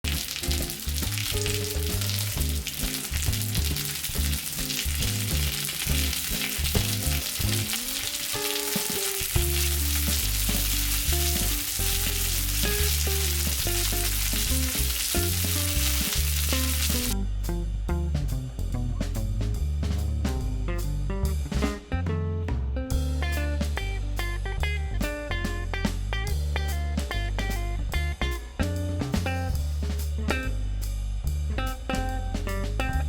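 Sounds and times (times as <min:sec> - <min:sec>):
pancakes sizzling in oil: 0:00.0 - 0:17.2
background music with bass: 0:00.0 - 0:33.0.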